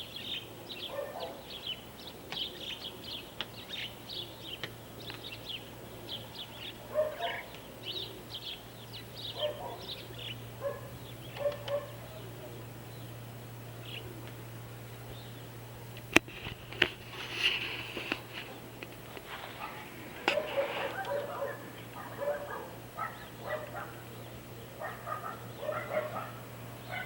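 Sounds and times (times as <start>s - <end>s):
small birds chirping: 0.0s - 27.0s
lower animal calls: 19.3s - 27.0s.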